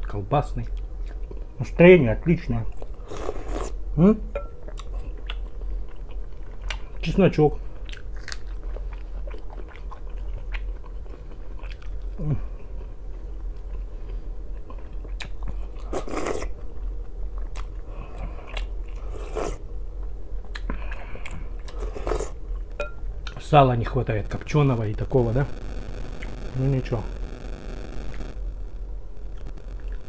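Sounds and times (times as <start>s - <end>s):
man chewing: 2.7s - 3.8s, 4.6s - 7.0s, 7.7s - 23.4s, 29.3s - 30.0s.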